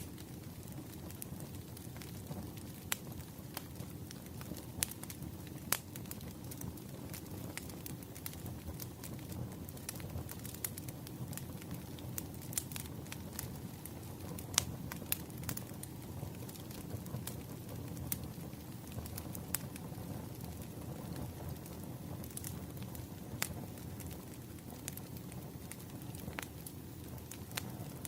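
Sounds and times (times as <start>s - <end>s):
firewood crackling and popping: 0.0s - 28.0s.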